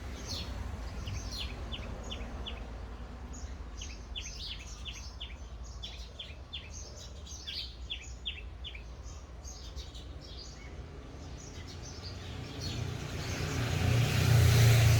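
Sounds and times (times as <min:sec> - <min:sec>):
small birds chirping: 0:00.0 - 0:14.9
motor vehicle approaching: 0:11.4 - 0:14.9.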